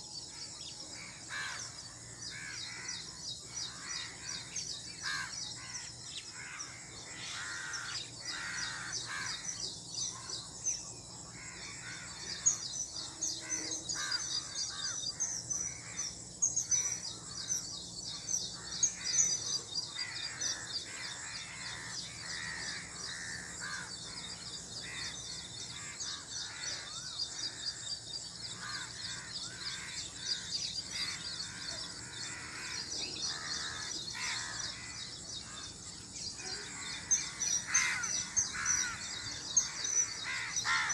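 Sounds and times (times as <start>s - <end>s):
harsh lower bird calls: 11.5s - 40.9s.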